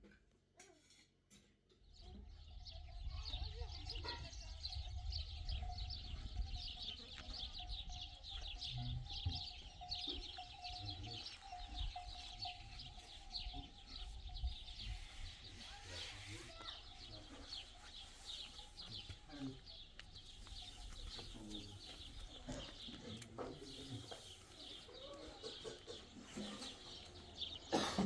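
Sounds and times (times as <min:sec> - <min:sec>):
small birds chirping: 0:00.6 - 0:28.0.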